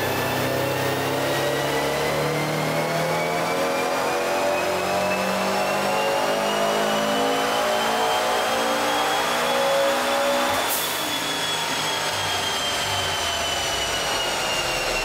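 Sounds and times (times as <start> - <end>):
car engine revving at full throttle: 0.0 - 15.0
steady high whine: 0.0 - 15.0.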